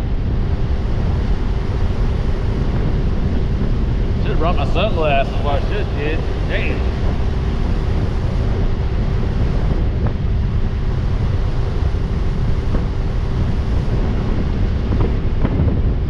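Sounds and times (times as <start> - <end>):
outboard motor running: 0.0 - 15.9
wind buffeting microphone: 0.0 - 16.0.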